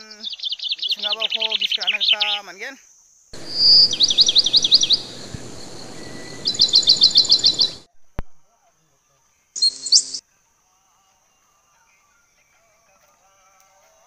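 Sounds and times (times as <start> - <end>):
bird chirping and trilling: 3.4 - 7.9, 9.6 - 10.2.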